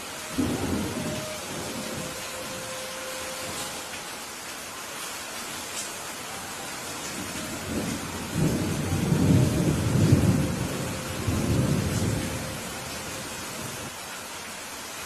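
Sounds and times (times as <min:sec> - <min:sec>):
steady rain: 0:00.0 - 0:15.0
rolling thunder: 0:07.6 - 0:12.9.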